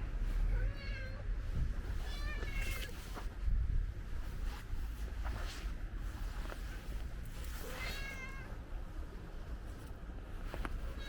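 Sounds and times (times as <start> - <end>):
low steady rumble: 0.0 - 11.0
cat meowing: 7.7 - 8.5.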